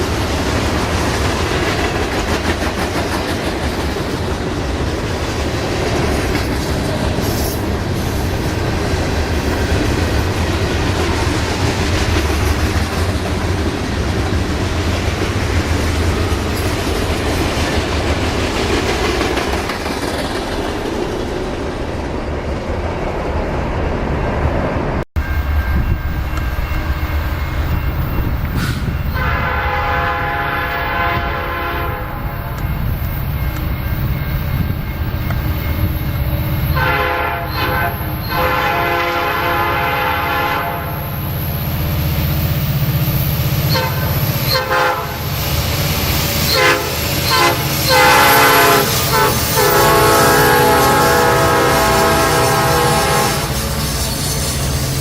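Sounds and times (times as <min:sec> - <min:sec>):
train rumbling on rails: 0:00.0 - 0:55.0
locomotive air horn blasts: 0:28.6 - 0:32.3, 0:36.7 - 0:41.0, 0:43.7 - 0:45.3, 0:46.5 - 0:53.8.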